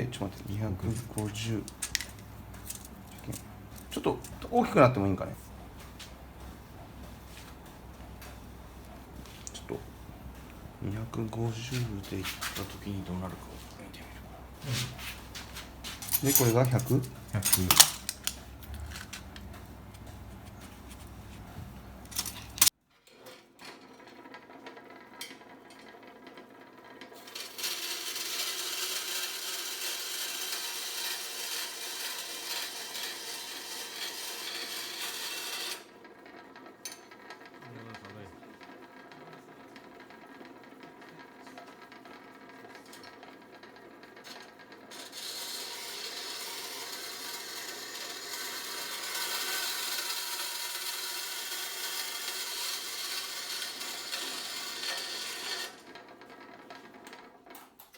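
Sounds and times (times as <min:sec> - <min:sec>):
scraping on sheet metal: 0:27.4 - 0:35.8, 0:44.9 - 0:55.8.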